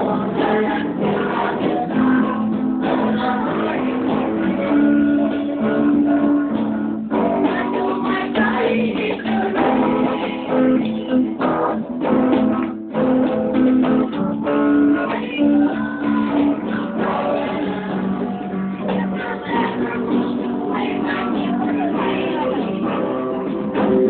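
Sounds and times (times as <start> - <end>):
strummed acoustic guitars: 0.0 - 24.0.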